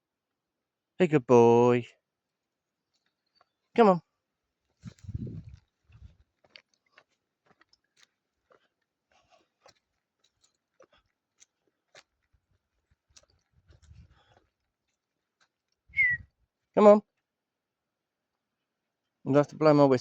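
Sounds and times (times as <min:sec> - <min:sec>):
footsteps crunching on dry ground: 0:04.7 - 0:15.7.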